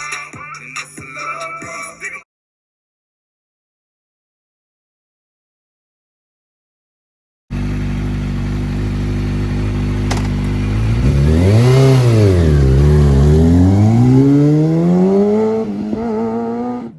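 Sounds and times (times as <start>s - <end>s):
motorcycle engine idling and revving: 7.5s - 16.9s.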